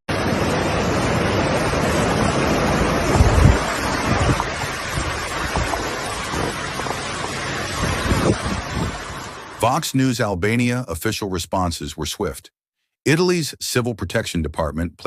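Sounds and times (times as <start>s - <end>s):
wind buffeting microphone: 0.1s - 9.6s
sea surf crashing: 0.1s - 10.3s.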